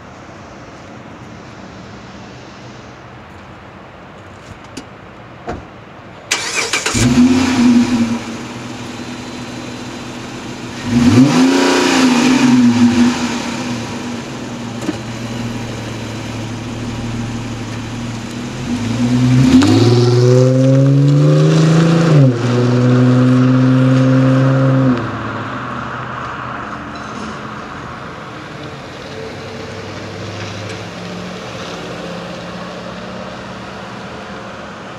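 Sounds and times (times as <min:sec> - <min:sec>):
car engine starting and revving: 0:06.3 - 0:25.8.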